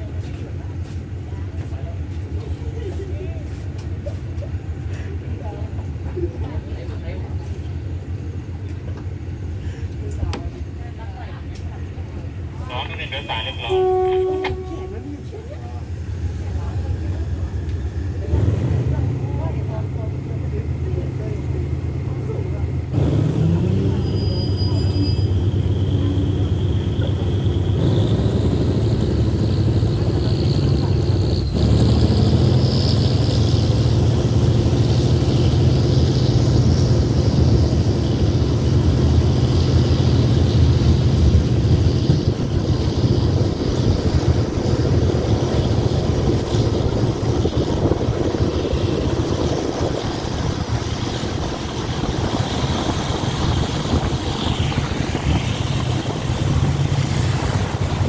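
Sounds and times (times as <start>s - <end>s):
diesel engine drone: 0.0s - 58.0s
wheel-on-rail noise: 23.6s - 58.0s.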